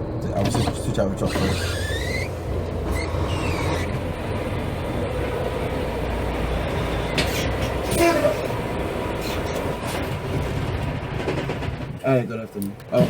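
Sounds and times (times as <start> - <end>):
diesel truck engine idling: 0.0 - 10.3.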